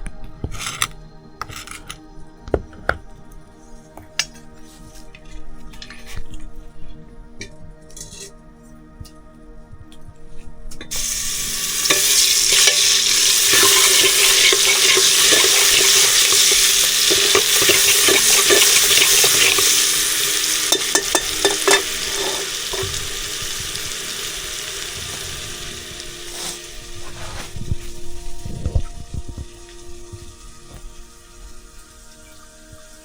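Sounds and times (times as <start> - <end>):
spoon scraping and knocking pan: 10.8 - 24.0
food sizzling in hot oil: 10.9 - 33.0.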